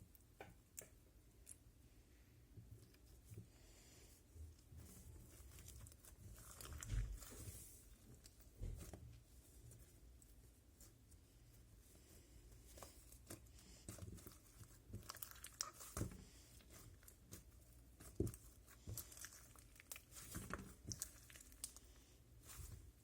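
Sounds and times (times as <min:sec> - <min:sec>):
slime crackling and popping: 0:12.8 - 0:21.9.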